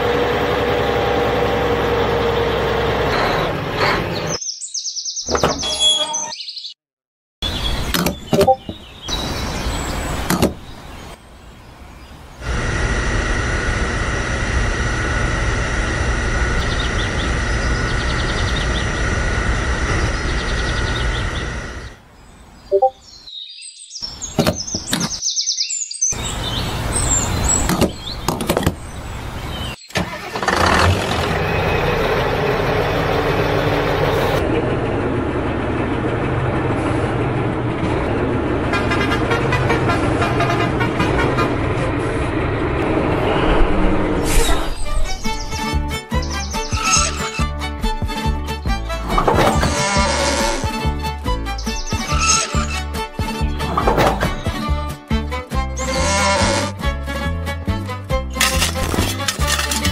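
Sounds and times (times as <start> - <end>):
rough engine running: 0.0 - 4.4, 12.4 - 22.0, 29.2 - 44.1, 45.6 - 57.0, 58.3 - 59.9
vehicle engine running: 12.4 - 22.0, 26.2 - 44.1, 45.6 - 54.8, 58.3 - 59.9.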